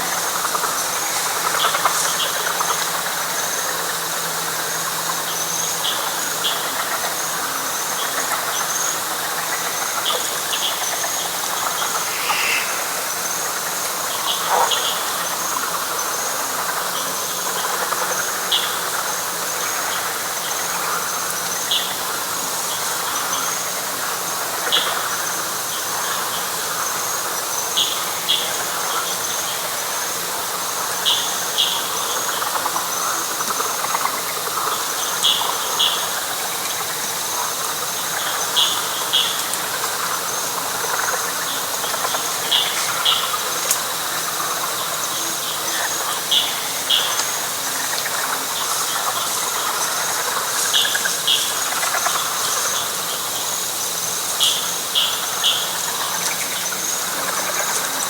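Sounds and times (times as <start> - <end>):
frog chorus: 0.0 - 58.0
high pulsing insect trill: 0.0 - 58.0
short high chirping calls: 11.8 - 12.9.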